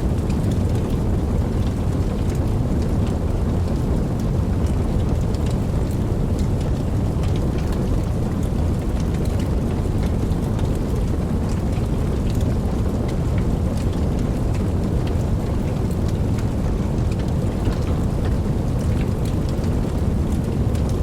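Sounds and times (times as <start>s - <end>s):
steady rain: 0.0s - 21.0s
deep even rumble: 5.9s - 21.0s.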